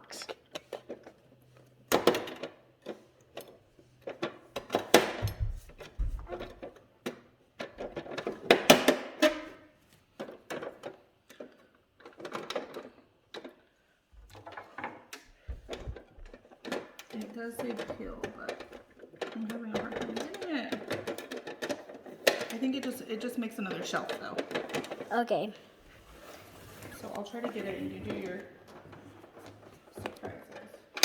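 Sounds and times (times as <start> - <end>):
toy packaging clicks and rustles: 15.7 - 25.6.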